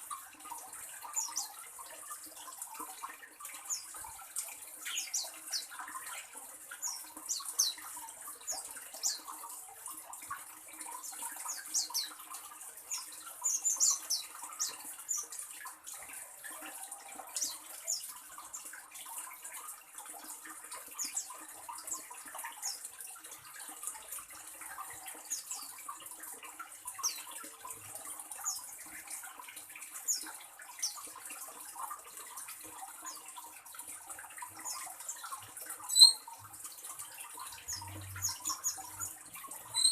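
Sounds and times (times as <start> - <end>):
birds chirping: 34.6 - 36.3, 37.7 - 39.9.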